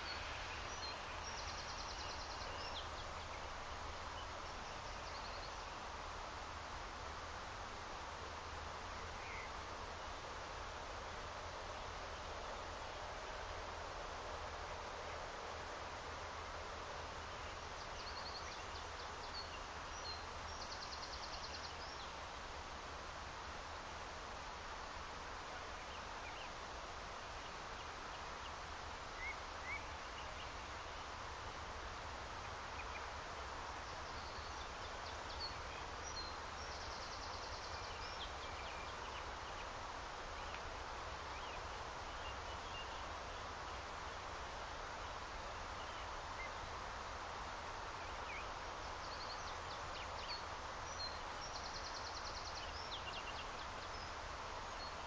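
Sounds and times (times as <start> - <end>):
songbird singing with trill: 0.0 - 5.9, 9.2 - 9.6, 17.4 - 22.2, 27.4 - 30.6, 33.8 - 39.8, 41.3 - 43.1, 48.0 - 54.2
steady outdoor hiss: 0.0 - 55.0.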